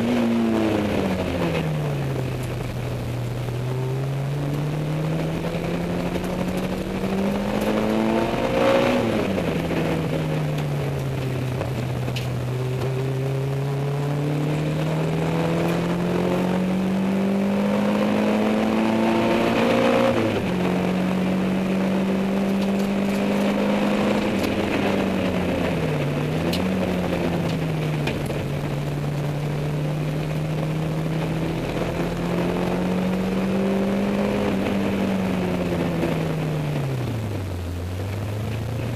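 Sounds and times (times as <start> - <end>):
car engine under load: 0.0 - 38.9.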